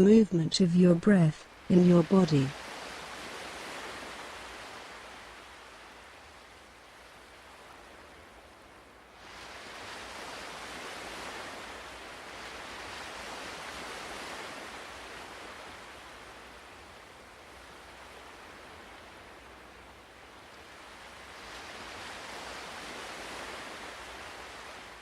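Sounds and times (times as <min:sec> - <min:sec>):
ocean surf rushing: 0:09.2 - 0:19.6, 0:20.6 - 0:25.0.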